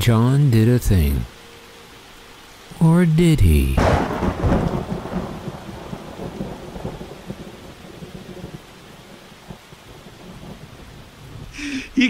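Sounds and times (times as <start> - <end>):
rain falling steadily: 0.0 - 12.0
low rumble of thunder: 3.8 - 11.6.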